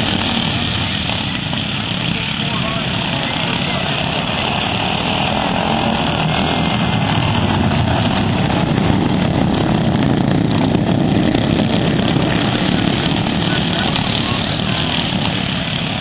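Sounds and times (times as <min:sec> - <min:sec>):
lawn mower engines racing: 0:00.0 - 0:16.0.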